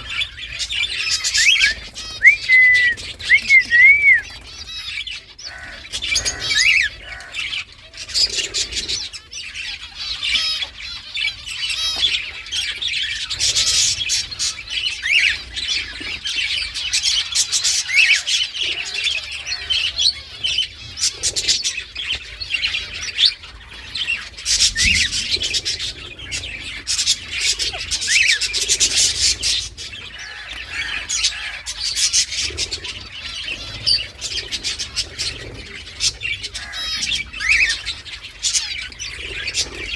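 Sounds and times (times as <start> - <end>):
parakeet rising whistle: 1.5 - 4.3.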